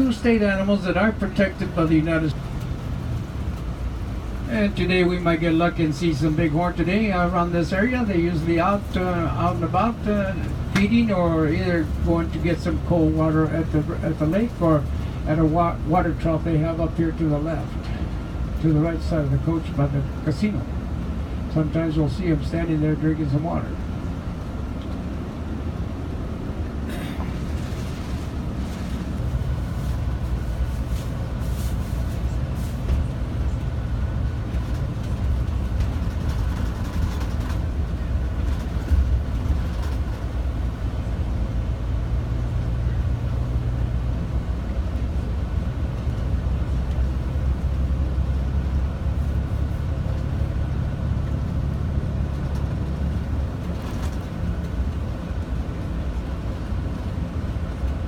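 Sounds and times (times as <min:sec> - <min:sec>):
bus engine running: 0:00.0 - 0:58.0
road noise: 0:00.0 - 0:58.0
light rattles and clicks: 0:32.9 - 0:40.6, 0:51.2 - 0:58.0.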